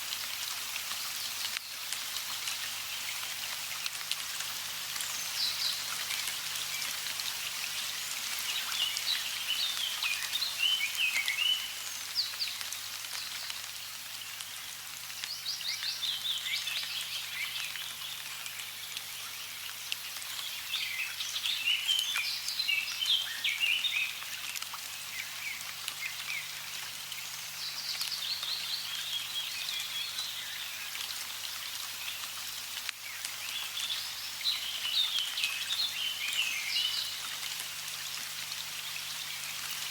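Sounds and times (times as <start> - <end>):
running water: 0.0 - 39.9
songbird chirping: 4.9 - 13.5, 25.1 - 31.2, 33.1 - 39.9.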